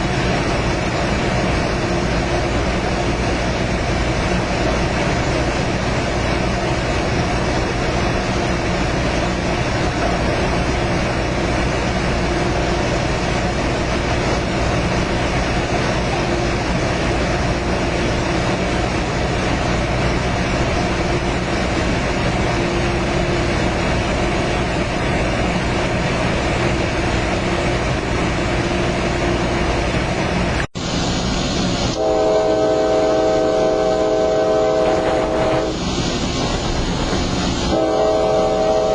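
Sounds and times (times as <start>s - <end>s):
moving train running noise: 0.0s - 38.9s
train horn chord: 31.9s - 35.8s, 37.7s - 38.9s.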